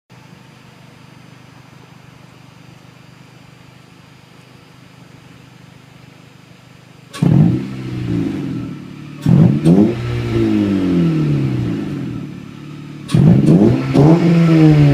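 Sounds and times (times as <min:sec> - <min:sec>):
car engine idling and revving: 0:04.2 - 0:14.9.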